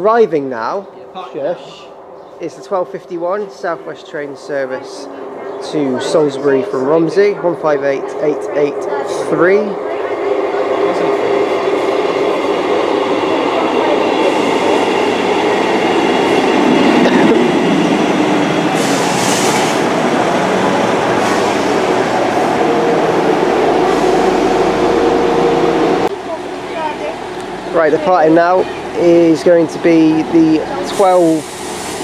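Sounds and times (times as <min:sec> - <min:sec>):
train engine and wheels rumbling: 0:00.0 - 0:32.0.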